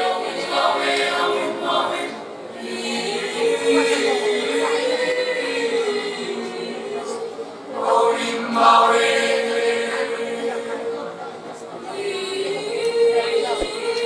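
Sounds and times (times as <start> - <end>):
choir singing sustained chords: 0.0 - 14.0.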